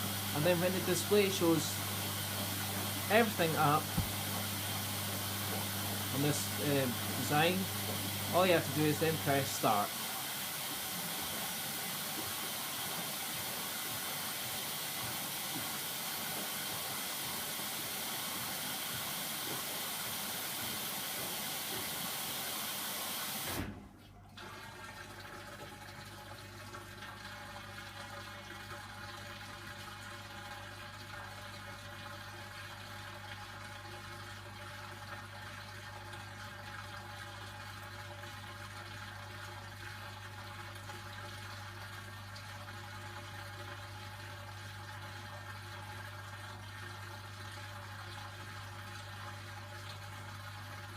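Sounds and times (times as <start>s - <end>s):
water rushing through inlet valve: 0.0s - 23.8s
washing machine hum: 0.0s - 50.9s.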